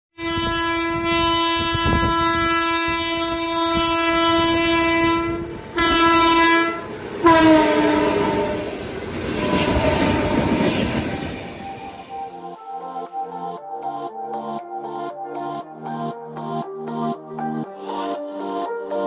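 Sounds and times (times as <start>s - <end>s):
train horn blasts: 0.2s - 12.2s
train wheels clattering on rails: 8.7s - 12.1s.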